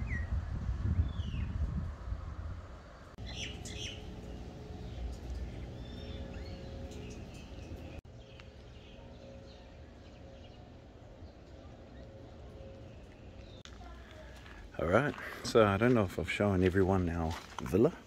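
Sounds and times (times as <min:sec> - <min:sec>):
low rumble: 0:00.4 - 0:13.7
small birds chirping: 0:03.2 - 0:14.8.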